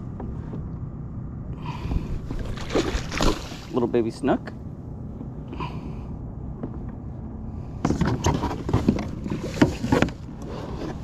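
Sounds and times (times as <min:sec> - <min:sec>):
fish thrashing and splashing: 0:02.2 - 0:03.7.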